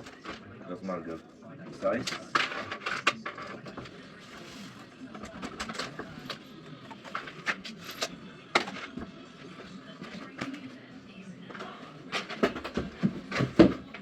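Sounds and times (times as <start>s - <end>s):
tools and materials knocking: 12.2s - 14.0s.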